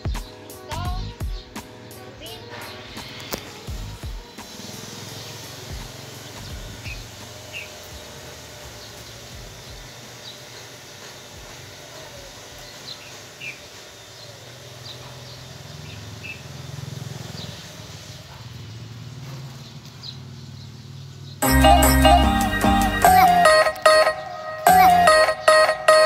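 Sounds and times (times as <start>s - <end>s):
loud music: 0.0s - 7.3s, 21.4s - 26.0s
low outdoor hum: 0.0s - 26.0s
small birds chirping: 0.0s - 26.0s.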